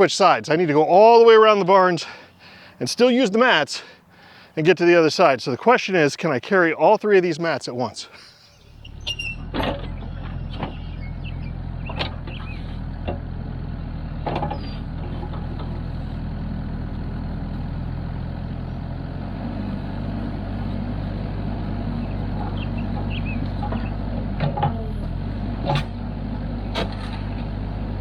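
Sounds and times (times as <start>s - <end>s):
excavator diesel engine running: 8.5s - 28.0s.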